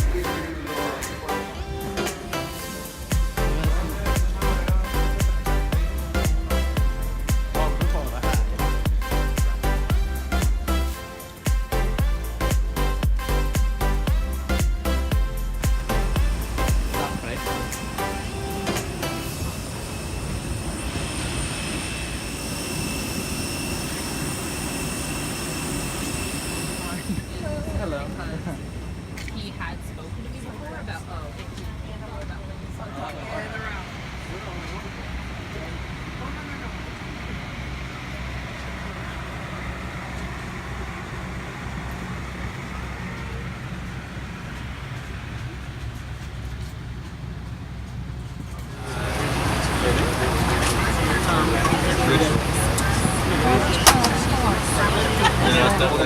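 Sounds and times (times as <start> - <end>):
high-pitched whine: 0.0 - 30.9
airplane cabin hum: 0.0 - 56.0.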